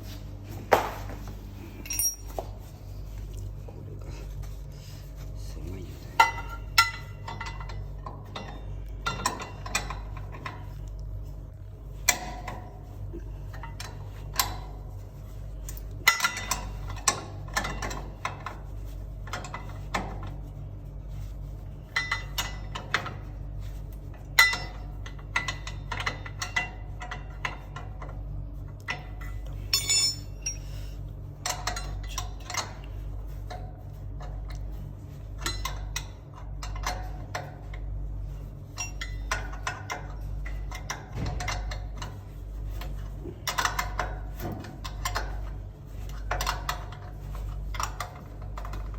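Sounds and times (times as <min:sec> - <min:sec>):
steady low hum: 0:00.0 - 0:48.9
metallic clinks of hand tools: 0:01.8 - 0:02.3, 0:29.7 - 0:30.7.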